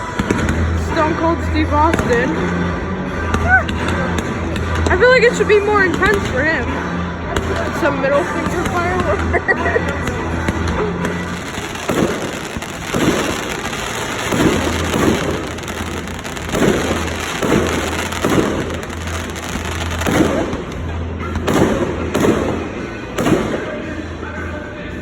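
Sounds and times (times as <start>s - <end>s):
firework crackle: 10.0s - 23.8s
firework shell bursts booming: 10.6s - 23.6s.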